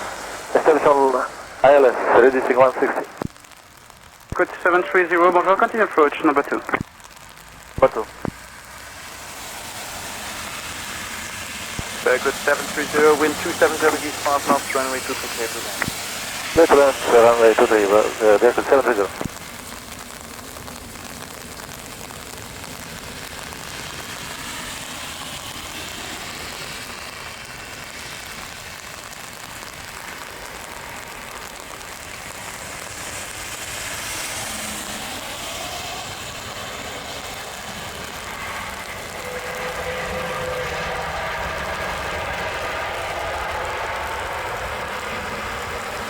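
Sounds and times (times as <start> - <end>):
jet aircraft hum: 0.0 - 3.3, 11.8 - 15.9, 16.5 - 19.4, 37.4 - 46.0.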